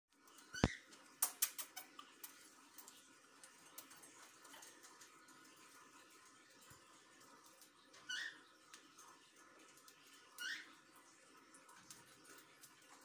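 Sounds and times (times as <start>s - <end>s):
small birds chirping: 7.4s - 9.0s, 9.8s - 12.7s.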